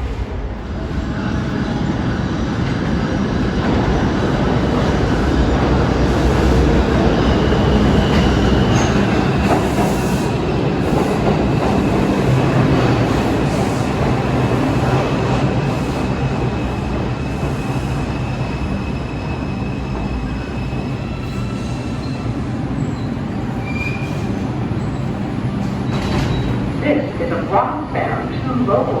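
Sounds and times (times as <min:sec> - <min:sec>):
subway train rumbling on rails: 0:00.0 - 0:29.0
high wheel squeal: 0:18.6 - 0:25.1.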